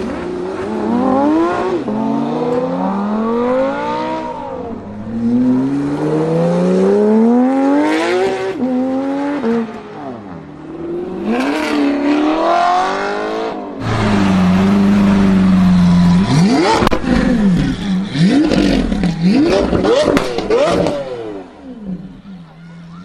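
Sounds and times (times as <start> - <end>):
car engine revving: 10.6 - 22.4.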